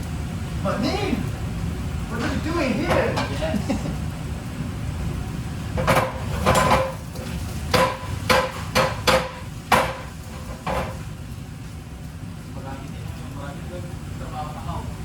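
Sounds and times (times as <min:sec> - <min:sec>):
knife chopping on wooden board: 0:07.7 - 0:10.9.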